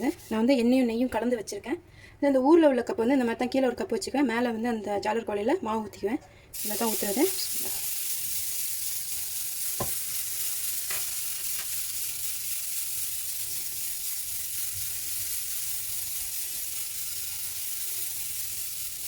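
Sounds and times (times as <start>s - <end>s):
batter sizzling on griddle: 6.6s - 19.0s.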